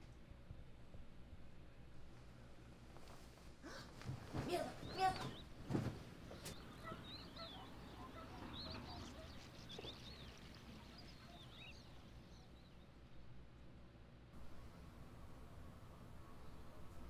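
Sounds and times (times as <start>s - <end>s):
faint birds chirping: 3.5s - 17.0s.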